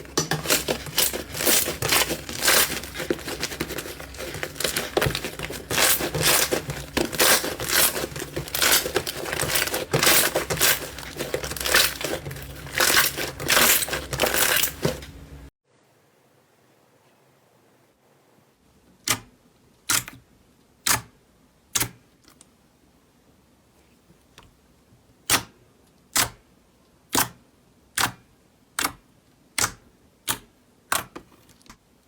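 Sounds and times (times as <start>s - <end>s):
slime squishing by hand: 0.0s - 15.1s.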